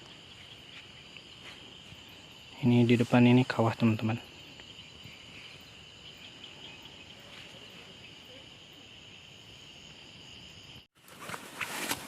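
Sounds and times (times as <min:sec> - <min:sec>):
night insects chirring: 0:00.0 - 0:11.1.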